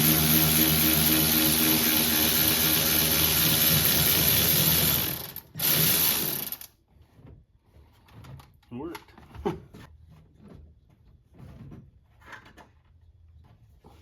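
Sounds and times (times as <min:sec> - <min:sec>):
power wrench spinning nut: 0:00.0 - 0:06.7.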